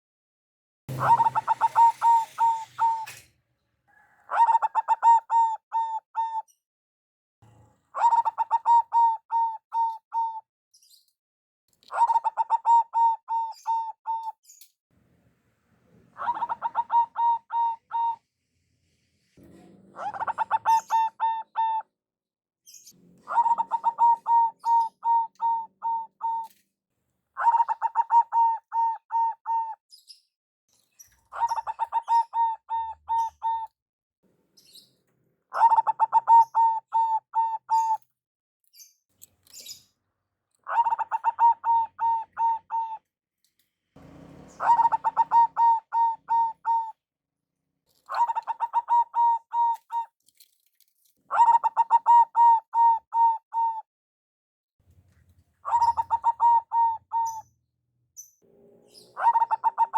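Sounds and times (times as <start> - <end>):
dove cooing song: 0.9 - 3.3, 3.9 - 6.5, 7.9 - 10.4, 11.9 - 14.3, 15.9 - 18.3, 19.6 - 21.9, 23.2 - 26.5, 27.4 - 29.8, 31.1 - 33.7, 35.5 - 38.0, 40.6 - 43.1, 44.0 - 47.0, 48.0 - 50.1, 51.3 - 53.8, 55.6 - 57.6, 58.6 - 59.9.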